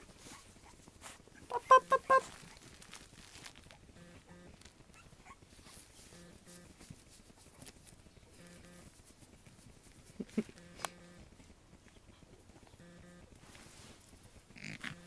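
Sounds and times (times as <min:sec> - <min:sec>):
puppies making short vocal sounds: 0:00.1 - 0:02.8, 0:04.9 - 0:06.0.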